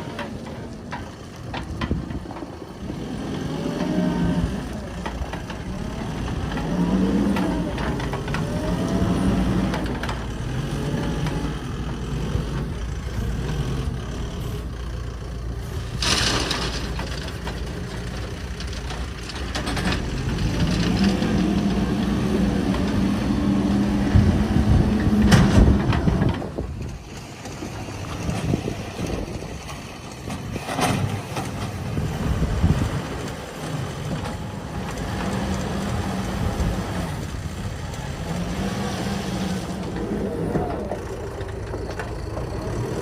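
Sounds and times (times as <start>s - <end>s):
diesel machinery engine revving: 1.1s - 29.4s, 30.2s - 43.0s.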